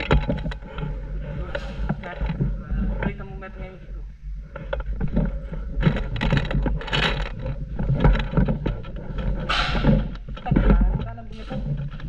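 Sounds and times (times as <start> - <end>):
irregular clicks and rattles: 0.0 - 12.0
steady low rumble: 0.0 - 12.0
rustling hisses: 0.6 - 2.0.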